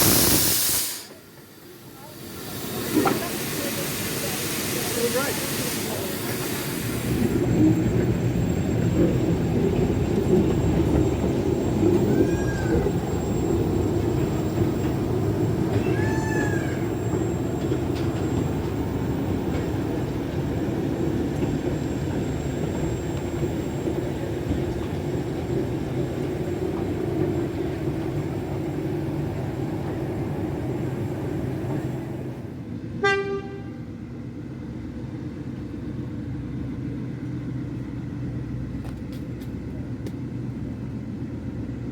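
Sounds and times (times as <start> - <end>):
locomotive rumbling: 0.0 - 41.9
locomotive whistle toot: 33.0 - 33.8.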